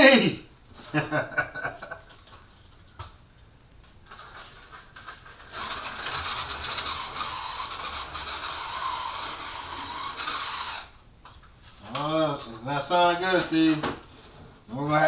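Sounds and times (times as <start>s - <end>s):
slot car electric motor whirring: 5.4s - 11.0s.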